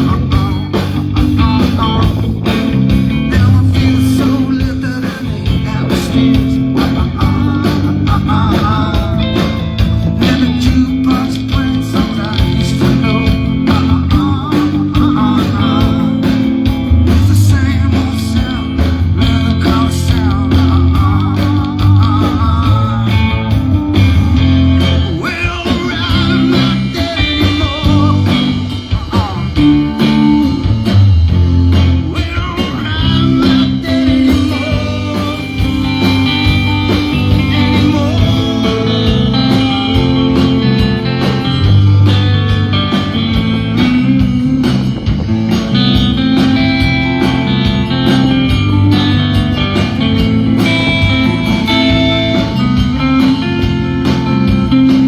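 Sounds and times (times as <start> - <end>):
live blues-rock band: 0.0 - 55.0.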